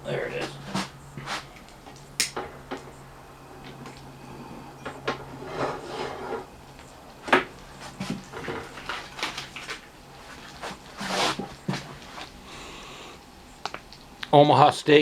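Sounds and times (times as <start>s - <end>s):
rustling: 3.6s - 12.7s
cooking gear clicks and knocks: 7.3s - 10.5s.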